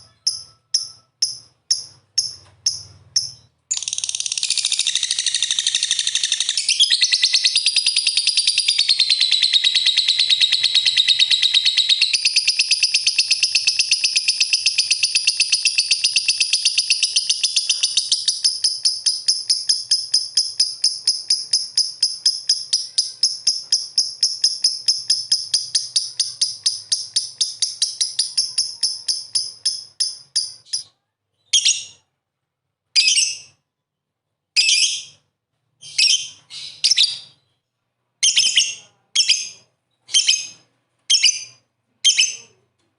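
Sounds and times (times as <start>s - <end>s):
bird chattering trill: 0.0s - 30.8s.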